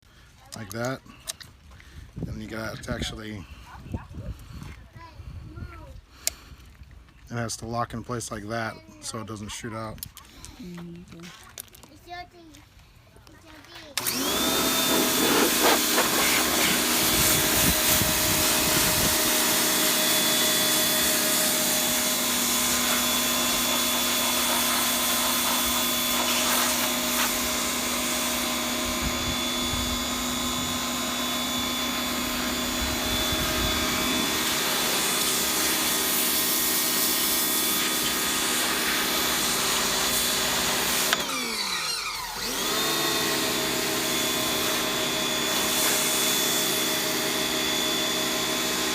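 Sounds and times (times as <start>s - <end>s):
pressure washer motor whine: 14.0s - 48.9s.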